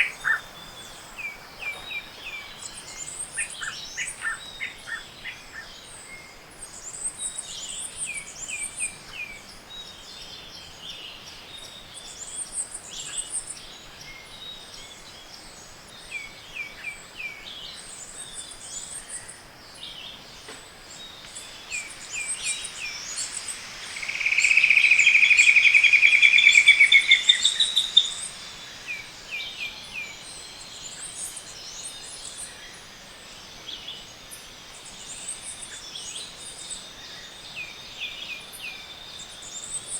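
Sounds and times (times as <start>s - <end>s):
birds chirping: 0.0s - 5.0s, 20.8s - 32.4s
bird trilling loudly: 22.5s - 29.0s.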